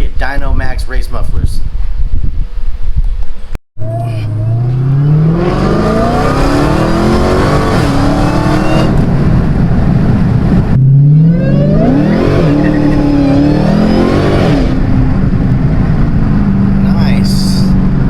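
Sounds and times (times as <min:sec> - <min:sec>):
car engine revving through gears: 0:03.8 - 0:16.8.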